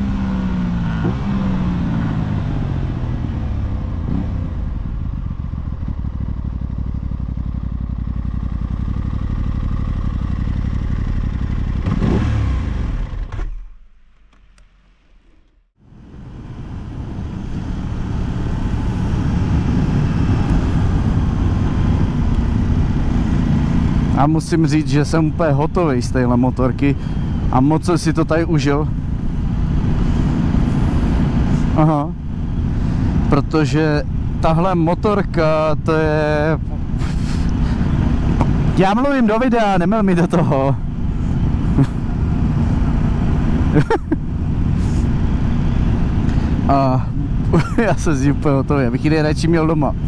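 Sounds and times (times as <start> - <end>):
motorcycle engine running: 0.0 - 14.0, 14.7 - 50.0
wind noise: 15.9 - 24.2.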